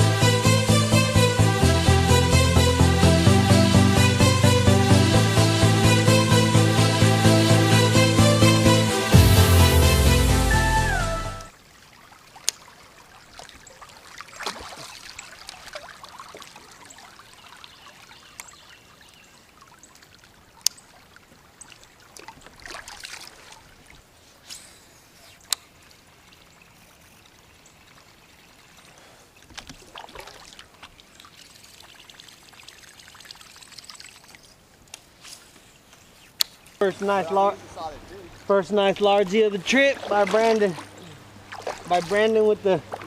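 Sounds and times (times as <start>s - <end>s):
water trickling and splashing: 11.5s - 43.0s.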